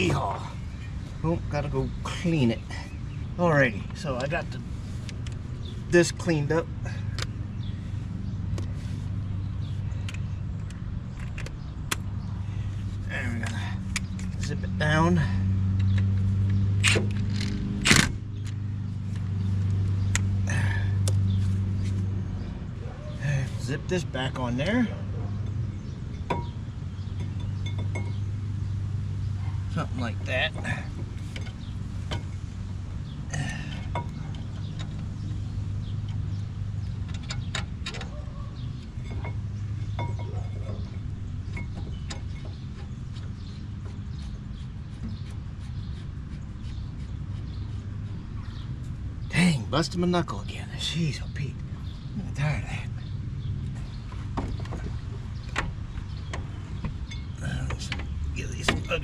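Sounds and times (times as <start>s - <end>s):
metal tools clanking: 23.7s - 28.4s, 29.7s - 43.7s, 53.0s - 59.0s.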